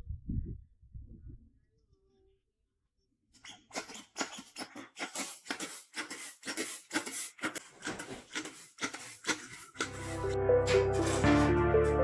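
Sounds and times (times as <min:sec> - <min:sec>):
hand tool rubbing a surface: 0:03.4 - 0:12.0.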